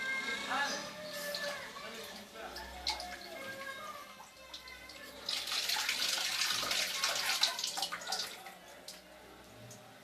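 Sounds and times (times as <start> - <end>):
water splashing: 5.2 - 9.0.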